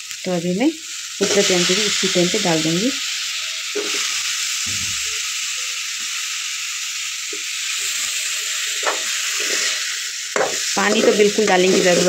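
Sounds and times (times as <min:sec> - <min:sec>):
masala sizzling in oil: 0:00.0 - 0:12.0
spatula scraping and knocking pan: 0:03.8 - 0:04.0, 0:08.8 - 0:12.0.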